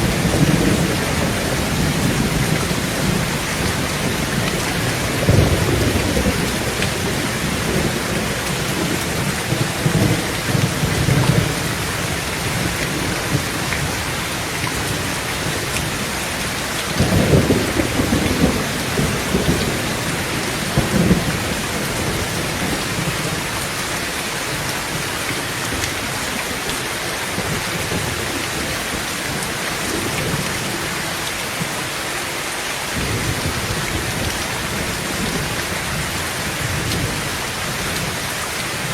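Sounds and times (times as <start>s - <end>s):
thunder rumbling: 0.0s - 23.7s, 33.0s - 38.9s
heavy rain on a tin roof: 0.0s - 38.9s.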